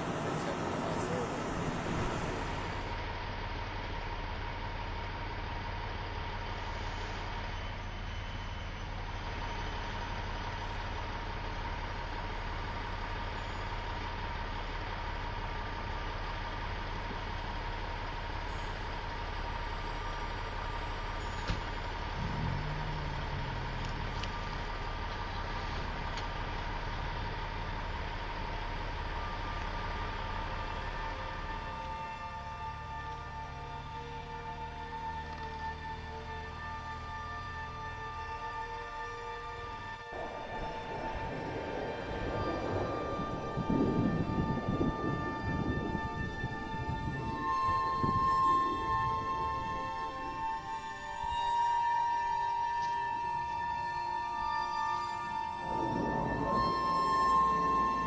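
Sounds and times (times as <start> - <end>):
vehicle engine idling: 0.0 - 36.8, 40.0 - 51.4
brief low sound: 55.2 - 58.0.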